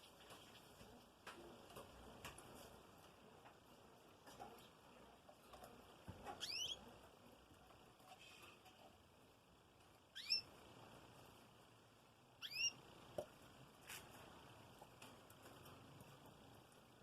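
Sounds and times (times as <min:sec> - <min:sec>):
bird chirps: 0:06.4 - 0:06.9, 0:10.1 - 0:10.5, 0:12.4 - 0:12.8.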